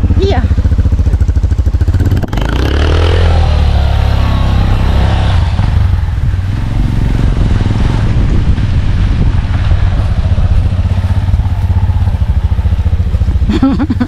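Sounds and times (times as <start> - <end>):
car engine pulling away: 1.2 - 14.0.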